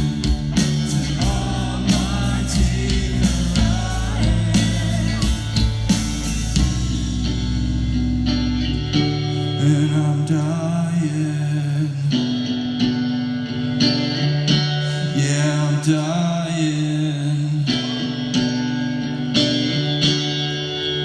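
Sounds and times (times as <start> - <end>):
drums: 0.0 - 9.6
electric guitars: 0.0 - 21.0
person singing: 0.7 - 6.3.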